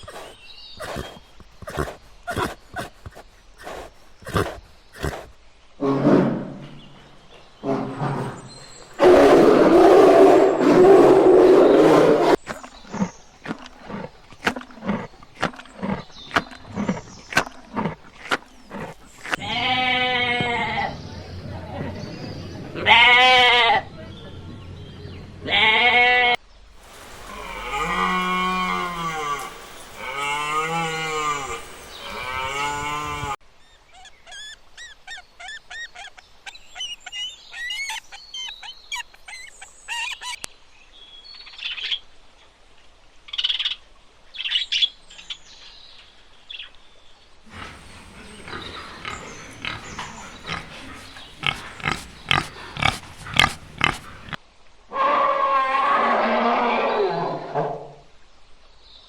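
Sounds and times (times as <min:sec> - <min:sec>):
bleats: 0:00.0 - 0:05.3, 0:19.2 - 0:21.0, 0:27.2 - 0:33.4, 0:47.5 - 0:54.4
cattle mooing: 0:27.2 - 0:33.4, 0:47.5 - 0:54.4
high chirps and squeaks: 0:33.6 - 0:40.4.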